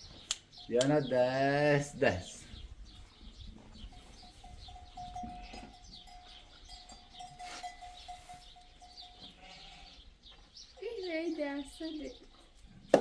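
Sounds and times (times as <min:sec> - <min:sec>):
small birds chirping: 0:00.0 - 0:13.0
goats and sheep bleating: 0:05.0 - 0:06.7, 0:08.9 - 0:10.2.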